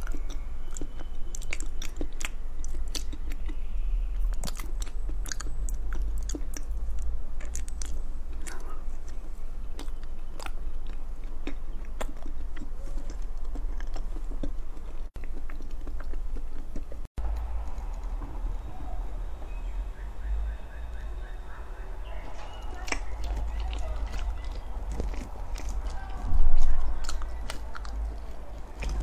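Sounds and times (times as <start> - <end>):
wet mouth clicks and lip smacks: 0.0 - 3.6
chewing and biting soft cake: 0.0 - 18.8, 22.2 - 29.0
steady low hum: 0.0 - 29.0.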